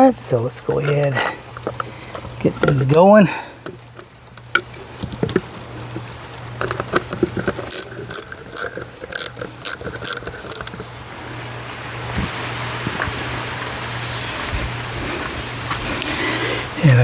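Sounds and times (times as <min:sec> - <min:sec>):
socket ratchet clicking: 0:06.6 - 0:10.8.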